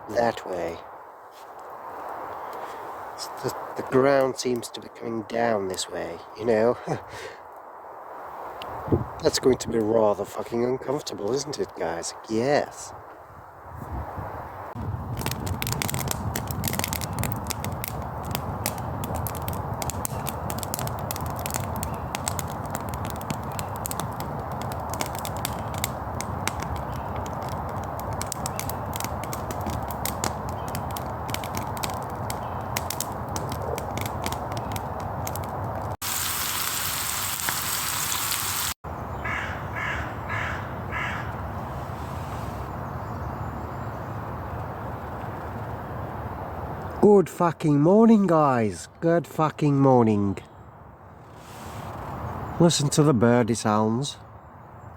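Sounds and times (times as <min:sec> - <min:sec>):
dense crackling: 0:14.7 - 0:38.8
crows cawing: 0:39.2 - 0:41.4.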